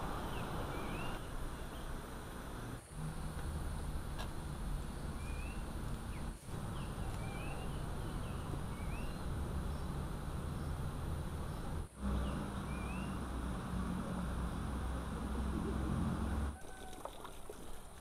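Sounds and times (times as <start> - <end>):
steady background hiss: 0.0 - 16.6
bird chirping: 0.2 - 2.0, 4.8 - 13.4.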